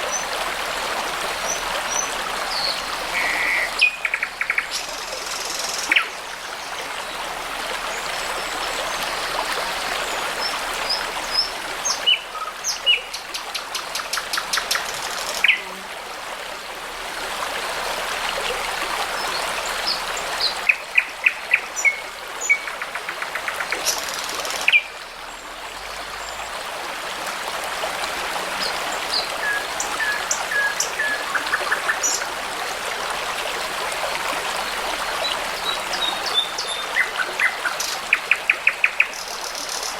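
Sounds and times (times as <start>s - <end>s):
babbling brook: 0.0s - 39.9s
songbirds singing: 35.2s - 39.9s.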